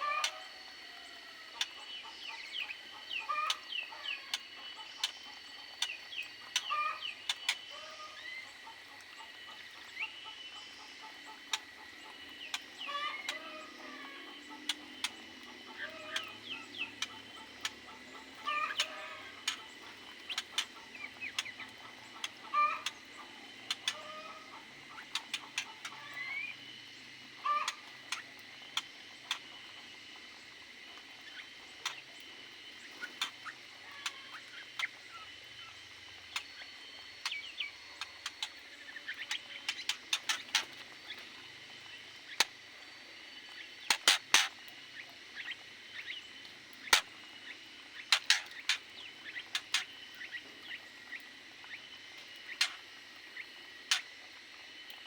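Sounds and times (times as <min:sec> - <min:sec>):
chickens clucking: 0:00.0 - 0:30.1, 0:36.0 - 0:42.6, 0:48.0 - 0:50.6.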